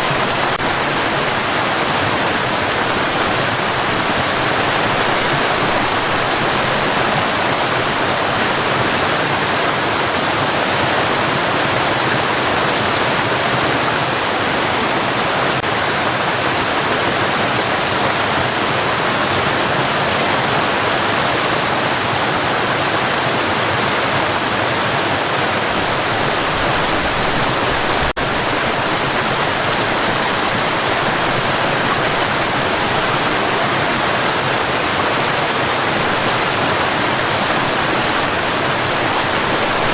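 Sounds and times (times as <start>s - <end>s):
steady white noise: 25.6s - 39.9s.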